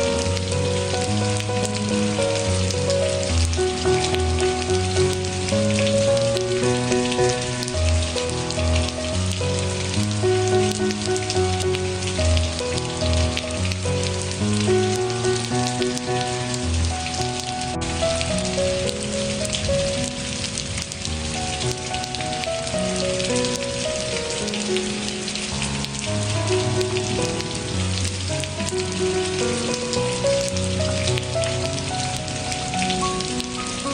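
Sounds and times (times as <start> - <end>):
rain pattering: 0.0 - 33.9
soft background music: 0.0 - 33.9.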